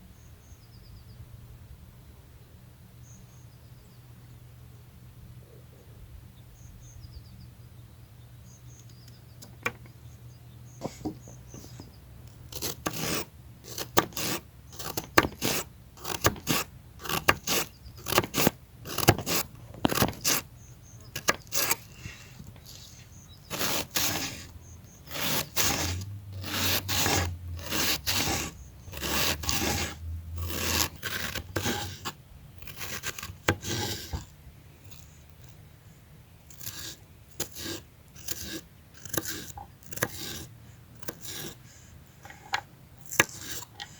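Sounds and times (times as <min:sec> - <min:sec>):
knife cutting on wooden board: 0:12.5 - 0:22.8, 0:23.5 - 0:24.5, 0:25.1 - 0:34.3, 0:36.5 - 0:41.6, 0:42.2 - 0:43.9.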